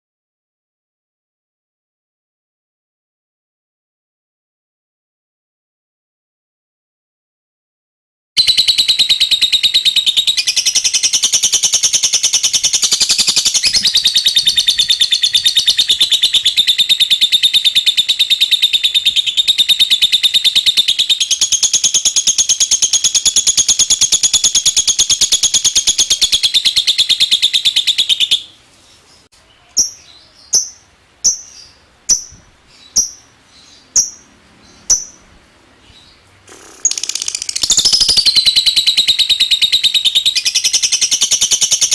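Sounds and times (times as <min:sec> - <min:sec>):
lovebird chattering trill: 0:08.4 - 0:28.6, 0:29.7 - 0:35.3, 0:36.5 - 0:41.9.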